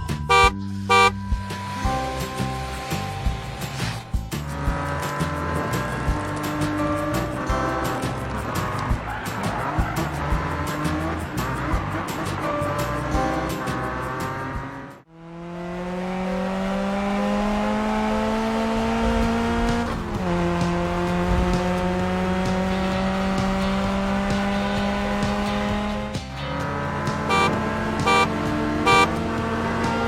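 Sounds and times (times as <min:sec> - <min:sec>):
cartoon car engine accelerating: 0:00.3 - 0:01.1, 0:03.8 - 0:30.0
short horn beeps: 0:00.3 - 0:01.2, 0:27.3 - 0:29.2.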